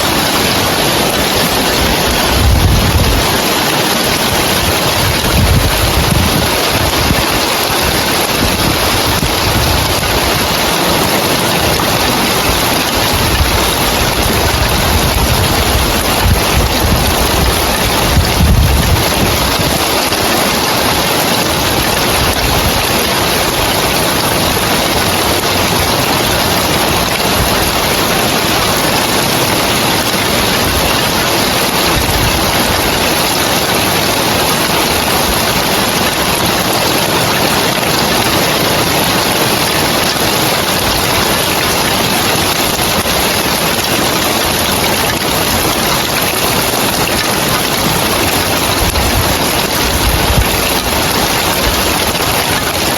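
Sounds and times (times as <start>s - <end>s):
rain on roof tiles: 0.0s - 52.9s.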